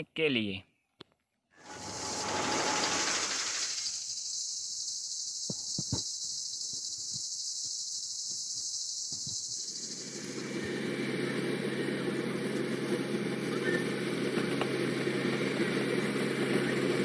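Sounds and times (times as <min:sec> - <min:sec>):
insects chirring: 0:01.6 - 0:14.8
low engine hum: 0:09.7 - 0:17.0.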